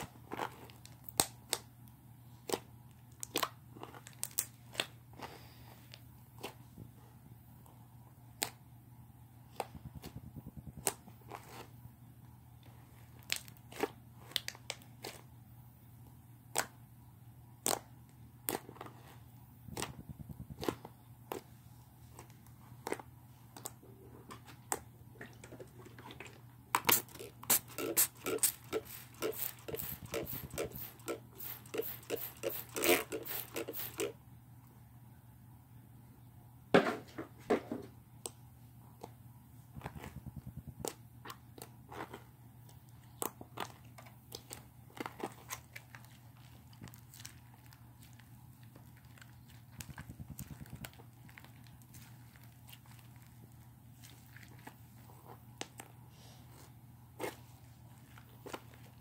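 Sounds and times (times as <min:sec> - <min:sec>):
slime squishing with sticky pops: 0:00.0 - 0:05.0, 0:42.6 - 0:55.9.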